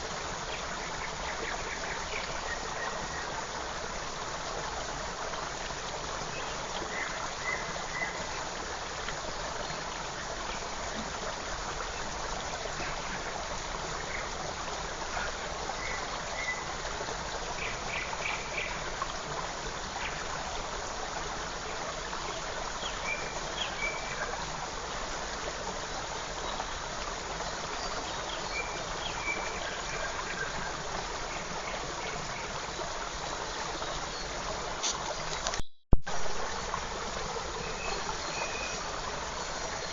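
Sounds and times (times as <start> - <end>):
creek trickling: 0.0 - 39.9.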